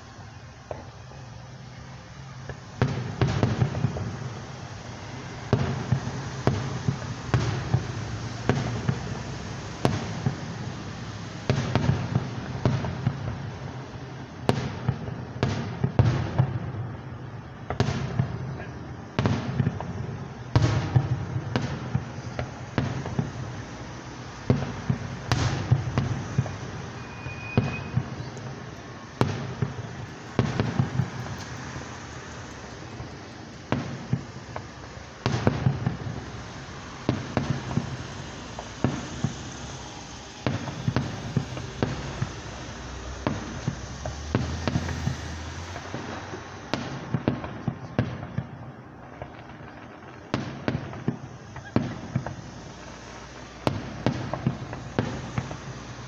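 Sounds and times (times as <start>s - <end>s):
echo of bangs: 19.2s - 39.4s
firework shells bursting: 19.2s - 56.0s.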